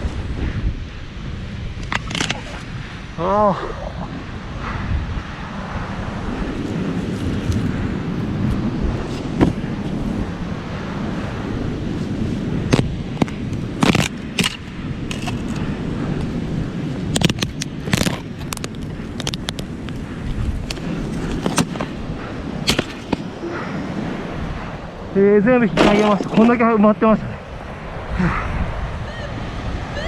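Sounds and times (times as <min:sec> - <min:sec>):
wind buffeting microphone: 0:00.0 - 0:30.0
shovel scraping and knocking metal: 0:01.9 - 0:02.6, 0:07.1 - 0:07.7, 0:09.0 - 0:10.2, 0:12.7 - 0:15.7, 0:20.6 - 0:22.0, 0:22.7 - 0:23.4, 0:25.8 - 0:26.6.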